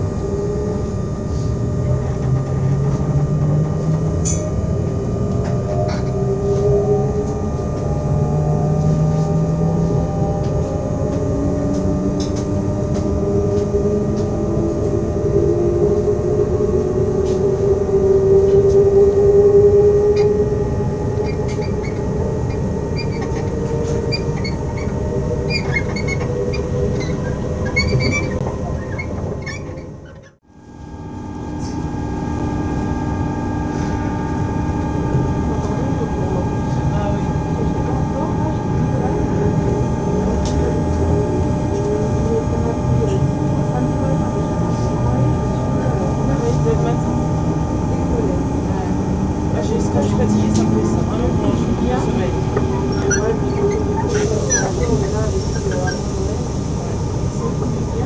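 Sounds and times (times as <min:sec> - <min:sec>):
electric train motor whining: 0:00.0 - 0:58.0
rail rumble: 0:00.0 - 0:58.0
small squeaks and ticks: 0:52.9 - 0:54.7.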